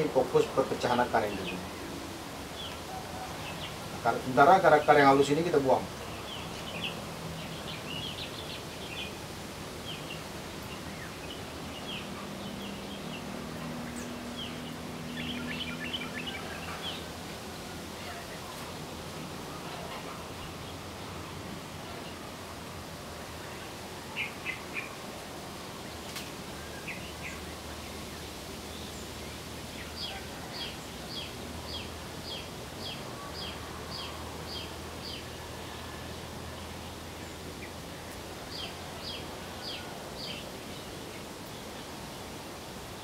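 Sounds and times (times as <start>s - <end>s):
bird chirping: 0.0s - 9.2s, 9.8s - 21.1s, 25.8s - 35.5s, 36.5s - 41.9s
outdoor background noise: 0.0s - 43.0s.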